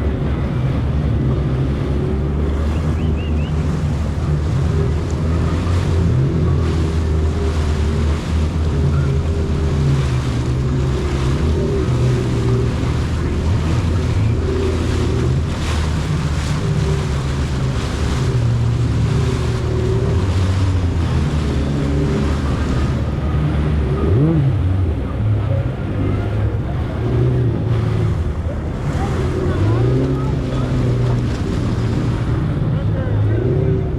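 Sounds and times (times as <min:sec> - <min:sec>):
jet ski engine running: 0:00.0 - 0:33.9
rushing water: 0:00.0 - 0:33.9.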